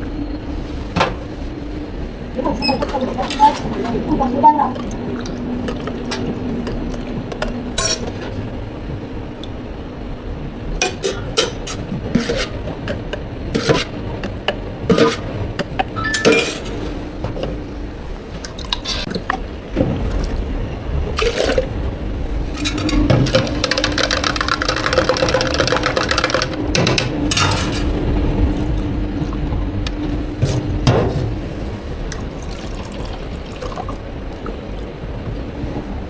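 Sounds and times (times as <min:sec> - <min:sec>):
low machine hum: 0:00.0 - 0:36.0
liquid pouring into cups: 0:32.1 - 0:34.4.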